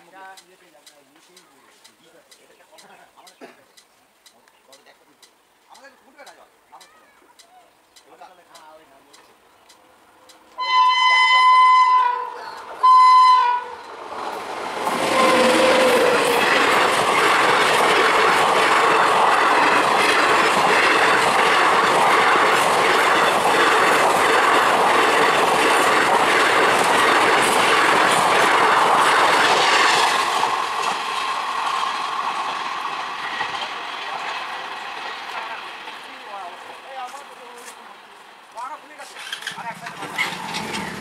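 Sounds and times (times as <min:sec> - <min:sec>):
passenger train rumbling past: 0:09.9 - 0:41.0
wheels clacking over rail joints: 0:13.6 - 0:37.6, 0:38.6 - 0:41.0.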